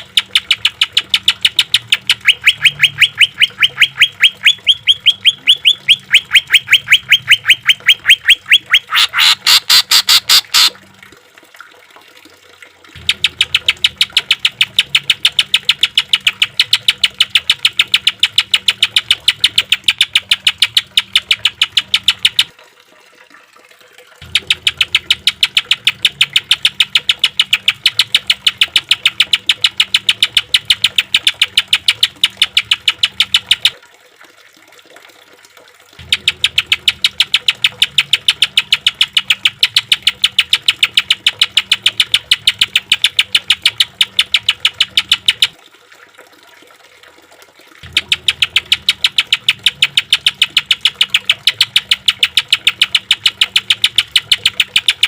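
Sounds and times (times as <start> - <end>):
bird giving harsh repeated notes: 0.0 - 10.7, 47.8 - 55.0.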